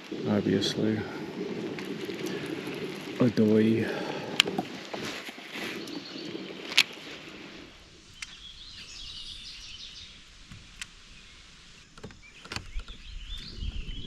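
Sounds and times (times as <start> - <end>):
water ambience: 0.0 - 14.0
bird chirping: 5.6 - 7.2, 8.0 - 10.4, 11.0 - 14.0.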